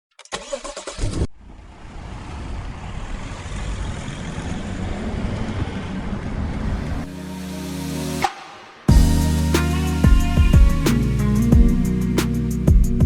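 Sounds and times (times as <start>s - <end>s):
vehicle engine and road noise: 0.9s - 7.1s.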